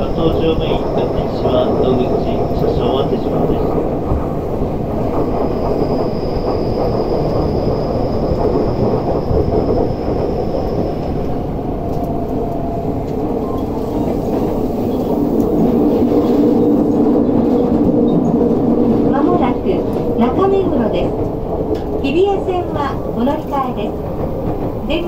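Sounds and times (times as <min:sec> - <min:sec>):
train wheels rumbling: 0:00.0 - 0:25.0.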